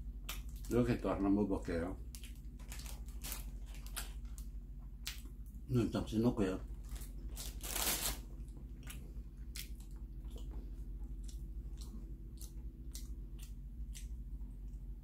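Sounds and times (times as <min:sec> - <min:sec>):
person chewing pastry: 0:06.7 - 0:15.0.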